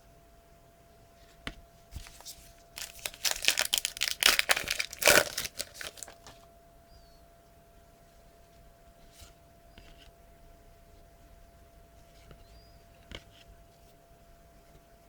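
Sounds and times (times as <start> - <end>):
wrapper crinkling and tearing: 2.0 - 6.4.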